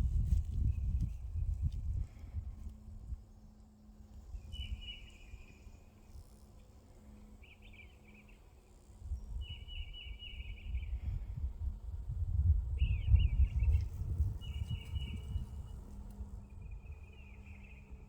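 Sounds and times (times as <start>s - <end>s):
low rumble on microphone: 0.0s - 3.4s, 9.0s - 18.0s.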